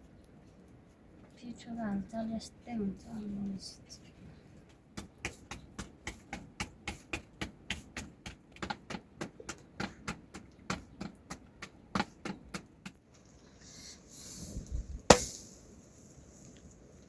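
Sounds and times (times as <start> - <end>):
hands patting dough: 4.6 - 13.0.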